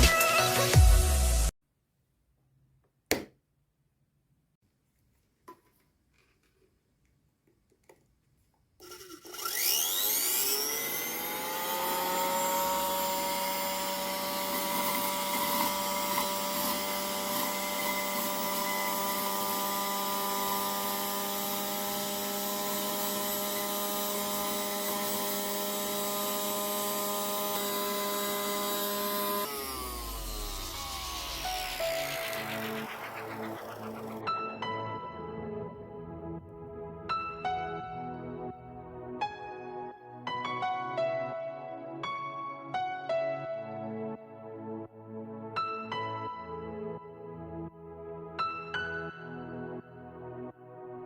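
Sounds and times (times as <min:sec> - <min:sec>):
small motor and fan whining: 0:08.8 - 0:34.2.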